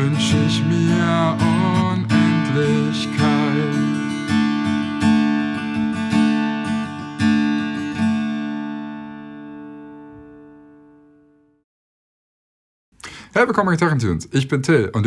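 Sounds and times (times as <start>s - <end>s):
acoustic guitar strummed: 0.0s - 11.4s.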